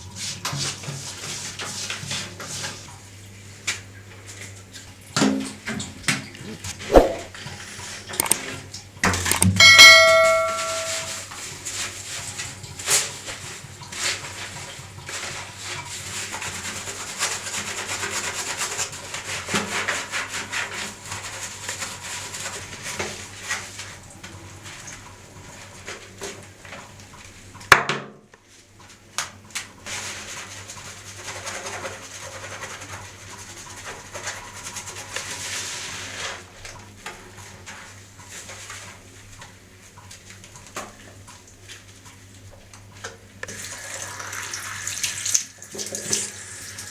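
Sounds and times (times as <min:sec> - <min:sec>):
rubbing and scrubbing: 0:00.1 - 0:02.9, 0:09.9 - 0:23.9
sharp clicks and knocks: 0:08.2 - 0:08.4, 0:09.1 - 0:11.1
metallic bell-like ring: 0:09.6 - 0:11.3.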